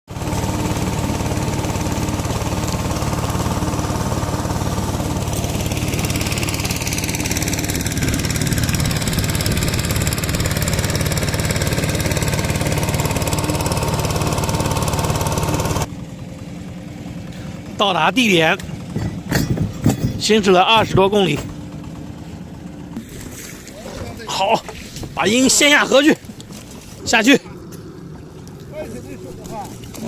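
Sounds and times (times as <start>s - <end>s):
boat engine running: 0.1s - 30.0s.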